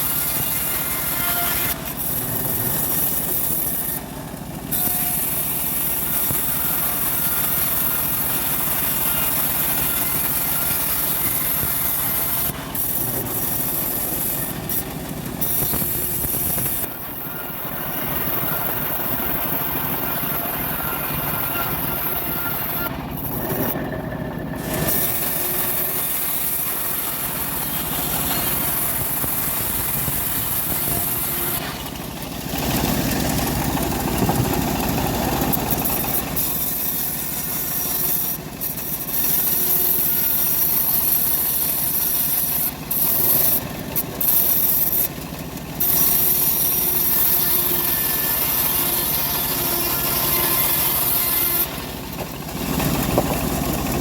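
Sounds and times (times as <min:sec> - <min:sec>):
bandsaw rasping through log: 0:00.0 - 0:23.9, 0:24.6 - 0:54.0.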